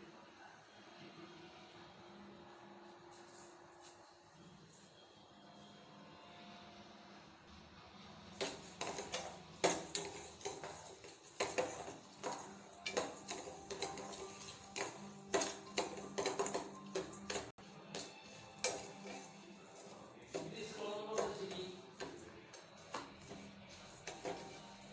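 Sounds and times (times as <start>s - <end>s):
background music: 0.0s - 24.9s
utensils clinking against a dish: 8.3s - 24.9s.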